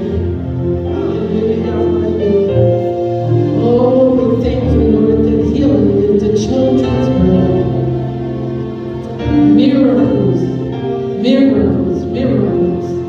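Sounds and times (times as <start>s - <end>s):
group singing gospel: 0.0s - 7.8s
sustained instrumental accompaniment: 0.0s - 13.0s.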